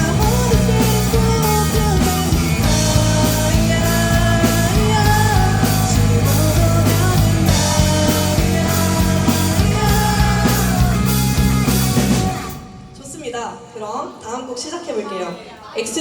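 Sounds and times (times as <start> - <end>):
person singing: 0.0 - 12.6
bass: 0.0 - 13.0
electric guitars: 0.0 - 13.0
drums: 0.0 - 14.6.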